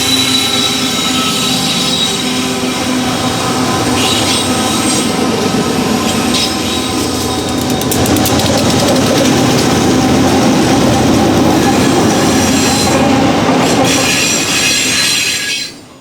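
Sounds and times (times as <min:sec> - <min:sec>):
wheel squeal: 0:00.0 - 0:09.8, 0:11.2 - 0:16.0
freight train rolling on rails: 0:00.0 - 0:16.0
wheels clicking over rail joints: 0:06.1 - 0:16.0.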